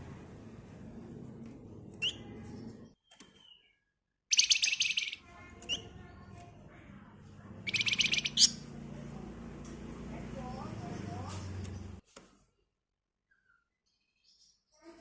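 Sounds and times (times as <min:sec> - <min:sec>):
bird chirps: 0:02.0 - 0:06.4, 0:07.6 - 0:08.7, 0:13.3 - 0:14.8
bird rattling trill: 0:04.3 - 0:06.0, 0:07.6 - 0:08.6.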